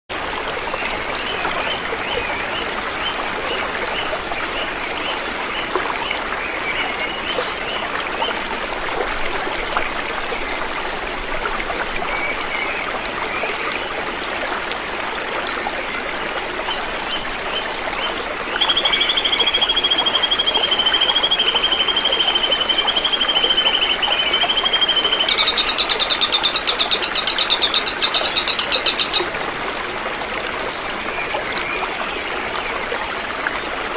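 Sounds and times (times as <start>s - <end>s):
stream running: 0.1s - 33.9s
shrill trilling call: 18.6s - 29.2s
small bird chirps: 18.6s - 29.2s.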